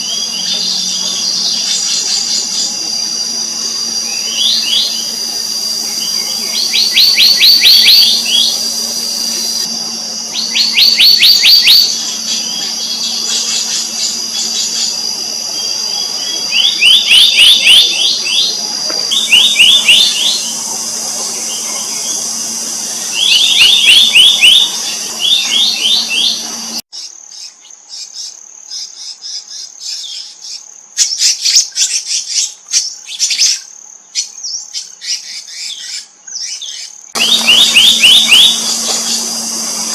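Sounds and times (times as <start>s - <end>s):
birds calling with rattling notes: 0.0s - 26.8s, 35.1s - 39.9s
low hum: 0.0s - 26.8s, 37.2s - 39.9s
steady high-pitched whine: 0.0s - 26.9s, 37.1s - 39.9s.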